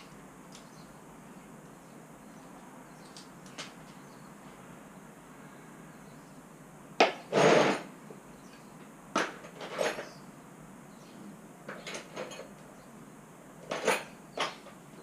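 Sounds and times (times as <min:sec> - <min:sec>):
scraping rattle of metal parts: 0:09.2 - 0:10.2, 0:11.7 - 0:12.6, 0:13.6 - 0:14.8.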